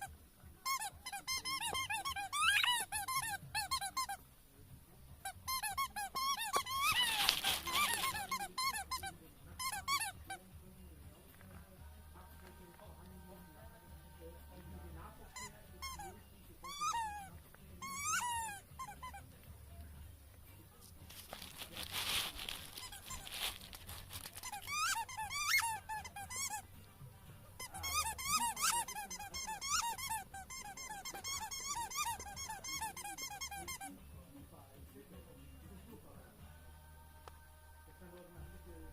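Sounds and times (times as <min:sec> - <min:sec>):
rubber squeaky toy squeaking: 0:00.0 - 0:04.2, 0:05.2 - 0:10.4, 0:15.3 - 0:19.3, 0:21.2 - 0:26.7, 0:27.6 - 0:34.0.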